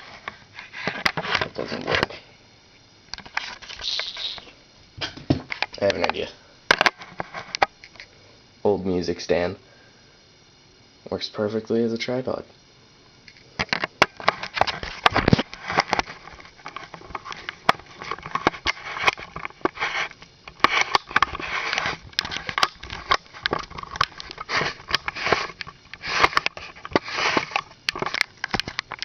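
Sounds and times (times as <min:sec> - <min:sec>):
device handling rubbing and rustling: 0:00.0 - 0:02.1, 0:03.2 - 0:04.4, 0:05.5 - 0:08.1, 0:13.3 - 0:29.0.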